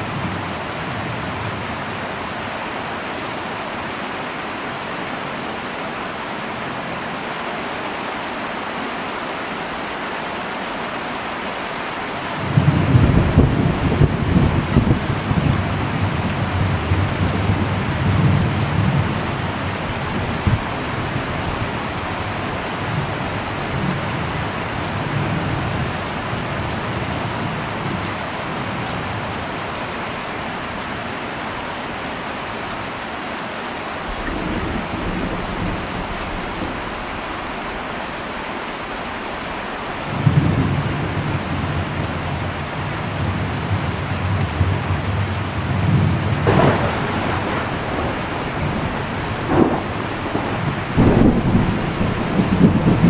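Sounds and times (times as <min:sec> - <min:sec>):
heavy rain on a metal roof: 0:00.0 - 0:53.0
rolling thunder: 0:12.3 - 0:30.0, 0:34.0 - 0:53.0.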